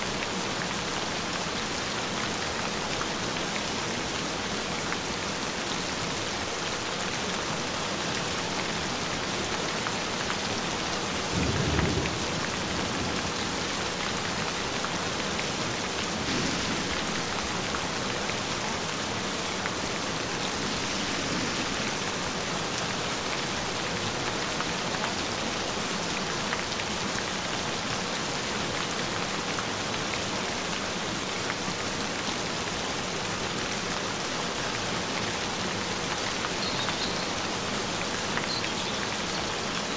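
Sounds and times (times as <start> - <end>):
steady rain falling: 0.0 - 39.9
low rumble of thunder: 11.3 - 13.9, 15.9 - 18.7, 20.0 - 23.0.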